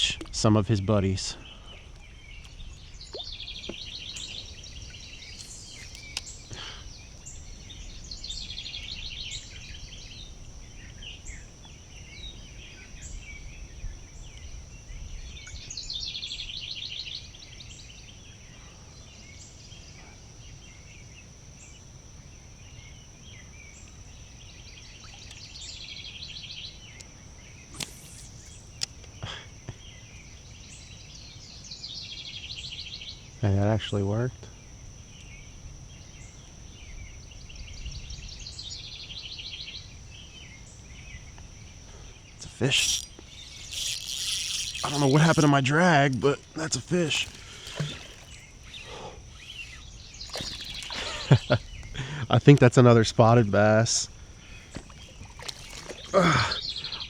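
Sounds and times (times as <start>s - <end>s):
high-pitched insect drone: 0.9s - 57.0s
songbird trilling: 1.4s - 11.5s, 24.8s - 29.1s, 42.4s - 52.2s, 54.4s - 57.0s
faint clicks: 42.7s - 52.7s.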